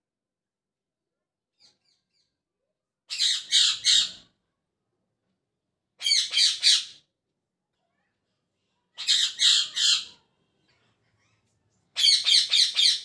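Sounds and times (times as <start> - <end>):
parrot squawking: 6.0 - 6.9, 9.0 - 10.2, 12.0 - 13.0
parrot chirping: 12.0 - 13.0.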